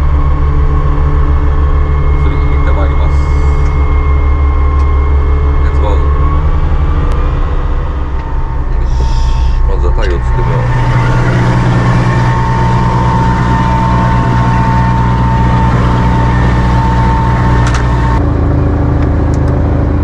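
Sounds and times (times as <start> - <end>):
motorboat engine with high whine: 0.0 - 20.0.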